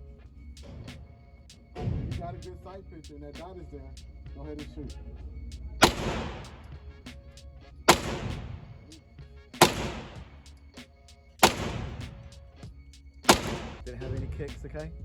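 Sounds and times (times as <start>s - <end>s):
background music: 0.0s - 15.0s
gunshots with echo: 5.8s - 6.7s, 7.9s - 8.8s, 9.6s - 10.4s, 11.4s - 12.2s, 13.3s - 13.9s.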